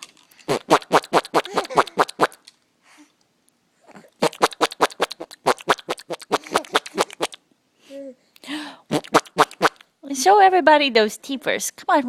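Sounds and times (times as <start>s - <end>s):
person making silly noises: 1.2s - 2.3s, 3.9s - 8.2s, 8.9s - 9.7s.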